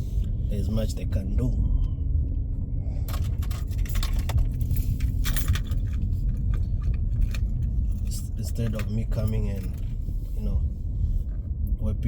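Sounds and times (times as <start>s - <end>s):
car driving from inside cabin: 0.0s - 12.0s
metallic jingling and clinking: 3.1s - 9.9s.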